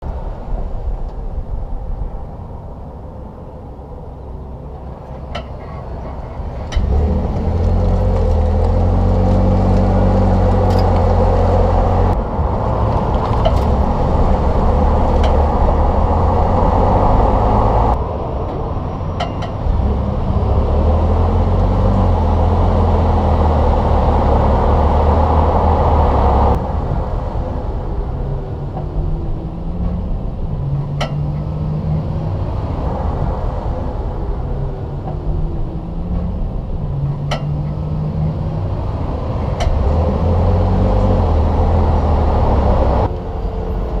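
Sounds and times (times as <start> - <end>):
pickup truck engine running: 4.3 - 31.6.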